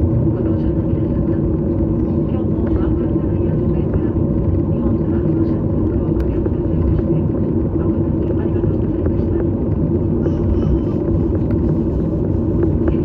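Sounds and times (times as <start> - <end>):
airliner engines and airflow rumble: 0.0 - 13.0.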